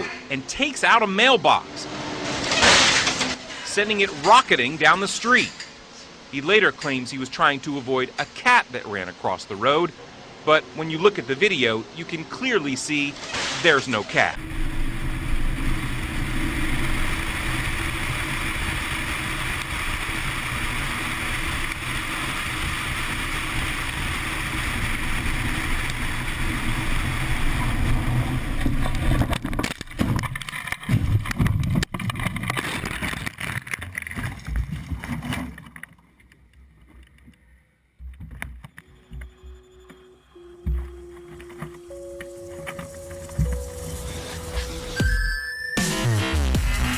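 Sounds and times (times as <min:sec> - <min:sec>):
vehicle running with road noise: 0:00.0 - 0:45.2
irregular knocks and thumps: 0:40.6 - 0:41.9.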